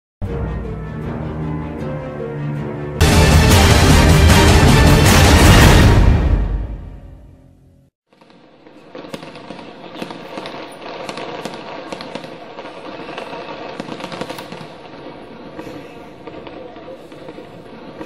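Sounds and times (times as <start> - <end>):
fireworks crackling: 8.1 - 18.0.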